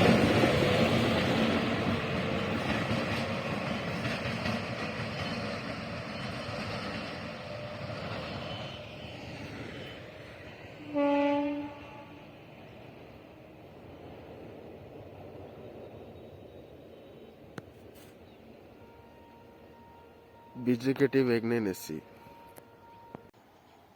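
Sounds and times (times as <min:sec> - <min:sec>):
train rumbling on track: 0:00.0 - 0:23.9
short train horn blast: 0:10.8 - 0:12.4.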